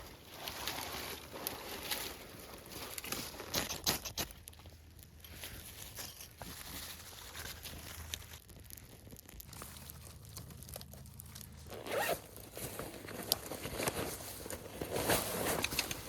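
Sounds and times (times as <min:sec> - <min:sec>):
zipper pulled open and shut: 0:11.6 - 0:16.0
fabric rustling: 0:11.7 - 0:16.0.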